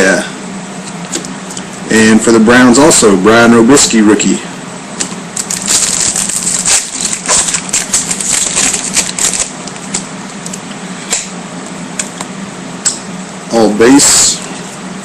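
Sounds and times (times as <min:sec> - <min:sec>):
trading cards clicking and rustling: 0:05.0 - 0:11.3.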